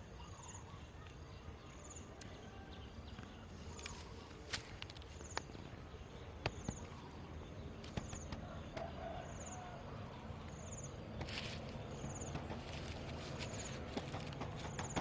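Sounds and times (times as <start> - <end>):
footsteps on twigs and leaves: 3.8 - 5.2, 11.2 - 14.8.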